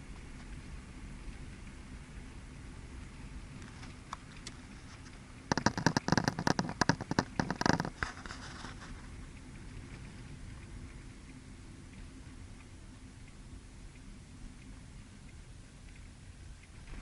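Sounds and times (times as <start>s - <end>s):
dense crackling and scraping: 3.6s - 10.2s.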